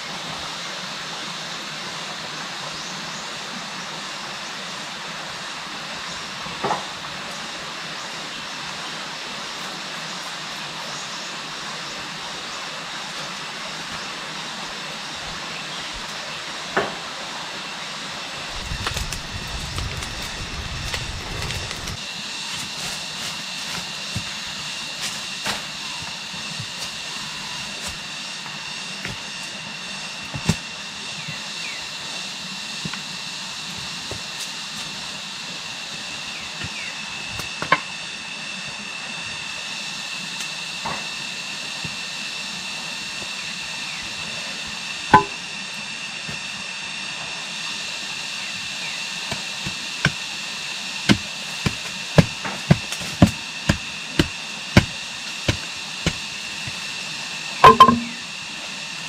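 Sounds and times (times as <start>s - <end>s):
faint high tone: 57.6s - 58.2s
sharp knocks: 57.6s - 58.2s.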